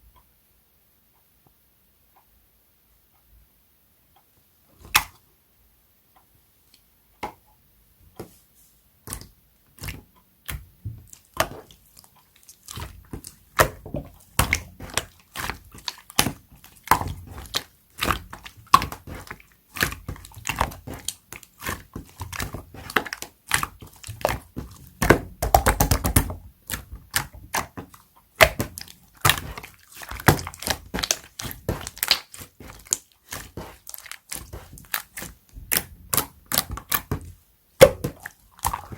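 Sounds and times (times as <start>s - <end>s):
slime clicking and popping: 9.1s - 38.9s.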